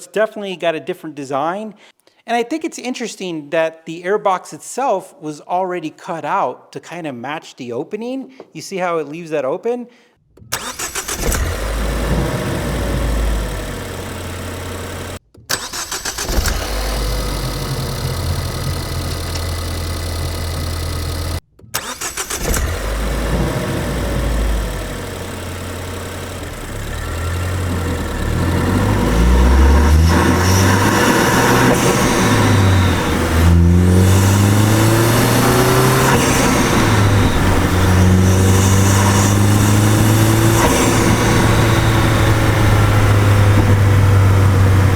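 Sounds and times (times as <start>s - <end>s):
car engine idling and revving: 10.4s - 44.9s.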